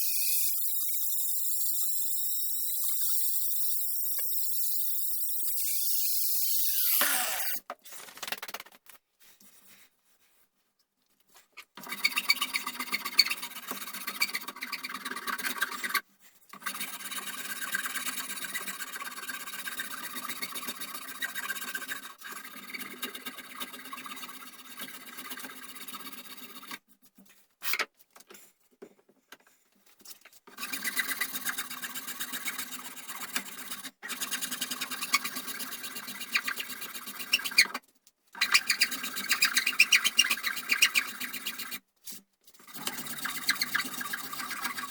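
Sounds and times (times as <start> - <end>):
electric power tool running: 6.8 - 7.6.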